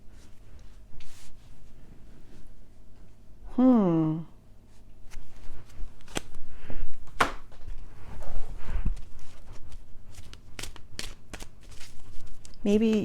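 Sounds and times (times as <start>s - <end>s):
cards sliding and rustling: 5.1s - 6.4s, 9.0s - 12.5s.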